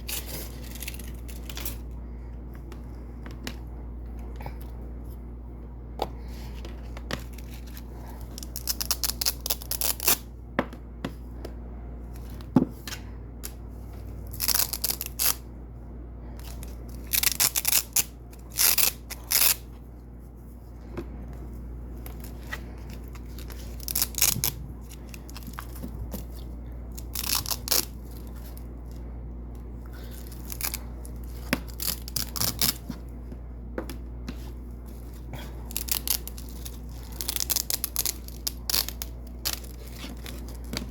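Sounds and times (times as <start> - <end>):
velcro strips ripping: 8.4 - 10.2, 14.2 - 15.5, 16.5 - 19.6, 23.0 - 26.3, 26.9 - 28.6, 30.1 - 32.9, 35.7 - 40.9.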